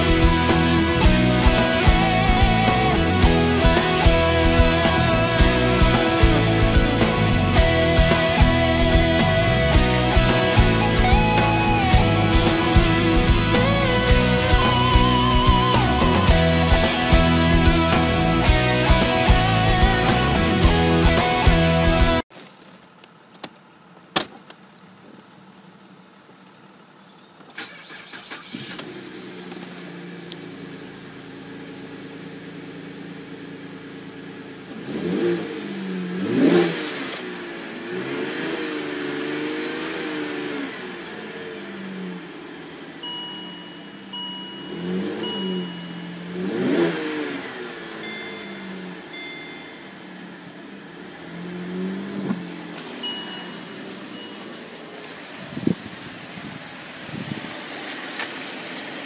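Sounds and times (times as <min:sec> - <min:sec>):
car engine idling and revving: 0:00.0 - 0:59.0
dashboard warning chime beeping: 0:43.0 - 0:50.4, 0:52.9 - 0:54.8.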